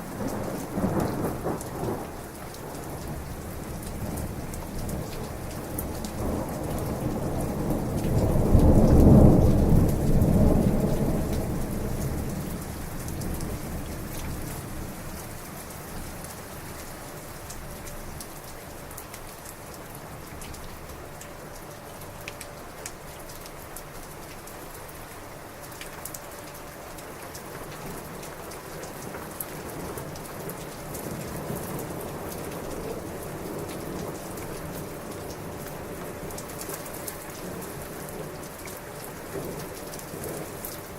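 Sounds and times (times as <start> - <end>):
heavy rain: 0.0 - 40.9
rain drop ticks: 0.2 - 14.6, 17.4 - 24.9, 25.6 - 40.9
thunder rumbling: 6.2 - 13.9.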